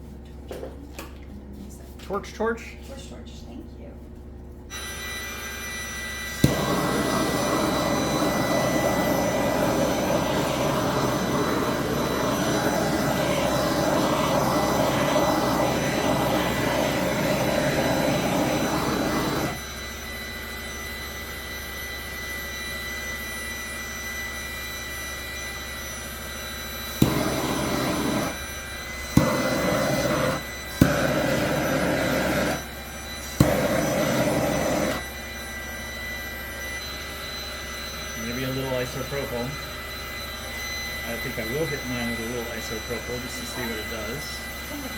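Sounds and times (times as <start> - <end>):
heat gun blowing: 4.7 - 20.1, 26.3 - 44.9.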